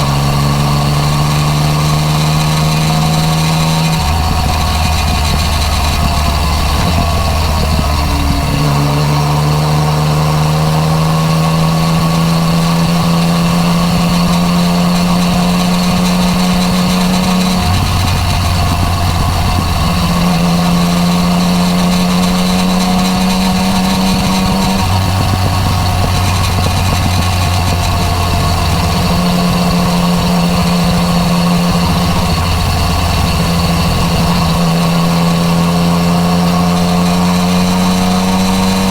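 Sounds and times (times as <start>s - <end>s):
motorcycle engine cruising: 0.0s - 38.9s
wind noise: 0.0s - 38.9s.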